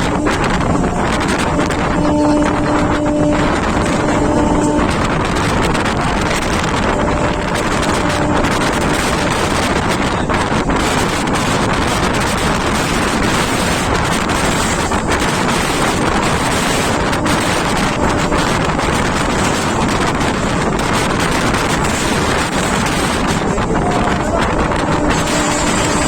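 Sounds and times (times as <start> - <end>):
train running at speed: 0.0 - 26.0
wind noise on microphone: 0.0 - 26.0.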